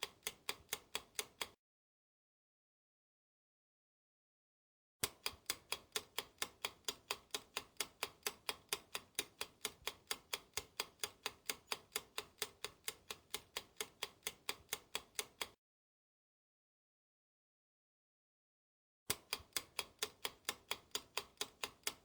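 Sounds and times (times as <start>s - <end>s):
clock ticking: 0.0s - 1.6s, 5.0s - 15.6s, 19.1s - 22.0s.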